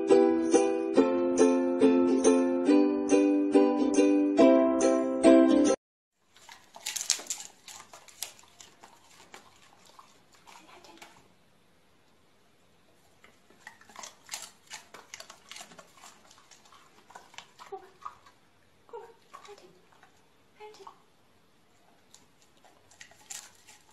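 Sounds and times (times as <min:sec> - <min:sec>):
dogs clicking and rustling: 0:06.3 - 0:11.3, 0:13.2 - 0:18.4, 0:22.1 - 0:23.9.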